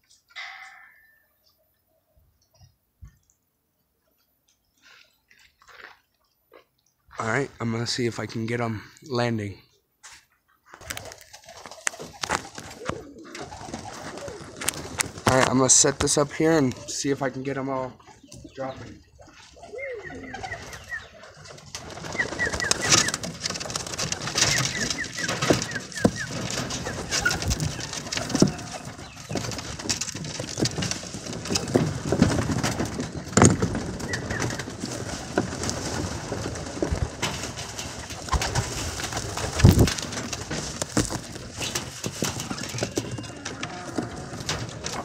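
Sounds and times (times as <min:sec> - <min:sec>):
pigeons cooing: 0:10.8 - 0:15.6, 0:16.2 - 0:45.0
birds landing knocks and flutters: 0:10.8 - 0:45.0.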